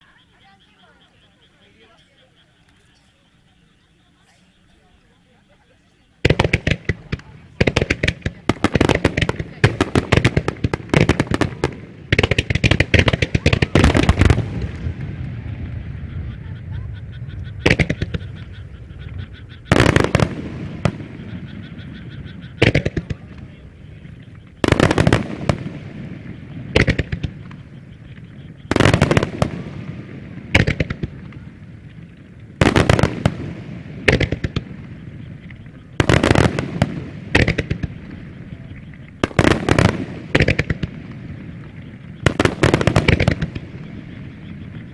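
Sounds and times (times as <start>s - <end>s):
fireworks bangs: 4.6s - 44.9s
fireworks crackling: 4.6s - 44.9s.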